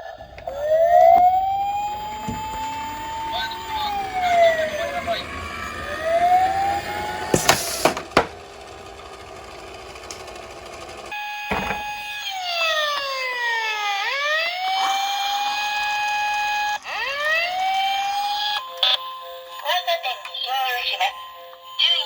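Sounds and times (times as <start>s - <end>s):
electronic ambulance siren: 0.0s - 10.4s, 11.1s - 22.0s
sharp knocks: 7.3s - 8.4s, 11.5s - 12.1s.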